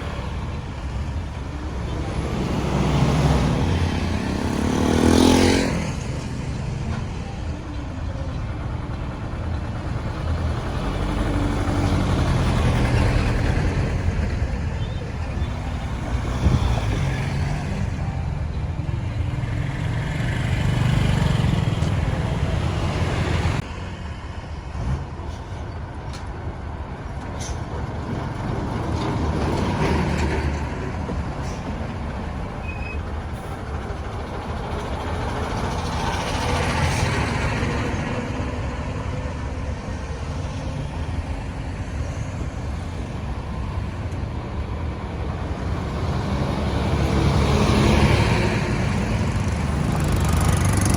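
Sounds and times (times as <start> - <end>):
road traffic rumble: 0.0 - 50.9
truck: 0.0 - 50.9
vehicles passing: 0.0 - 50.9.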